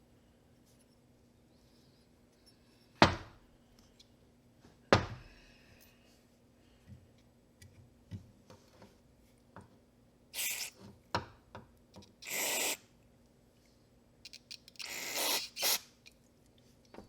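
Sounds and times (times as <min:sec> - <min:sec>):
hissing spray spurts: 0:10.4 - 0:10.7, 0:12.2 - 0:12.8, 0:14.8 - 0:15.9
small parts clicking and knocking: 0:14.3 - 0:14.8.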